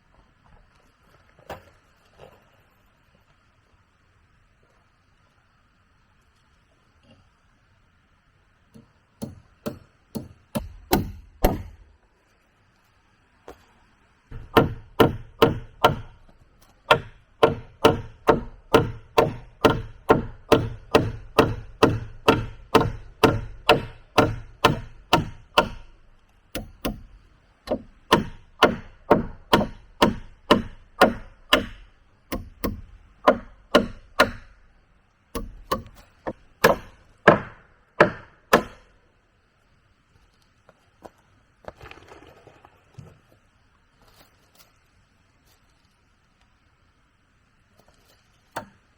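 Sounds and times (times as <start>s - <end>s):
tool striking wood: 8.8s - 11.8s, 14.3s - 34.6s, 35.4s - 38.9s, 48.6s - 48.8s
faint rustling: 40.0s - 46.6s.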